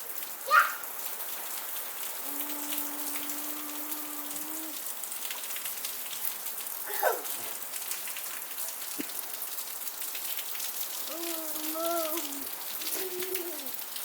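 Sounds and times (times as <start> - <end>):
rain pattering: 0.0 - 14.0.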